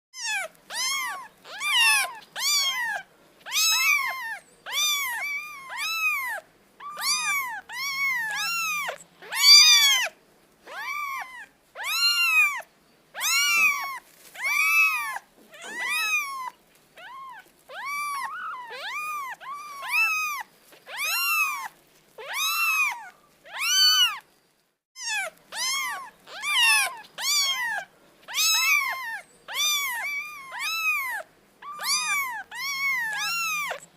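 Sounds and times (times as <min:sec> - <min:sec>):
cat meowing: 0:00.2 - 0:24.3, 0:25.0 - 0:33.9.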